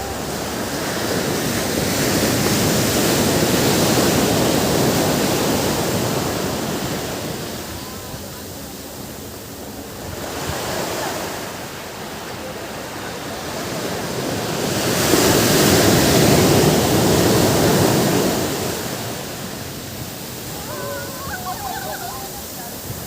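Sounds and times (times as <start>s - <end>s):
big wave breaking: 0.0s - 23.0s
ocean waves washing in: 0.0s - 23.0s.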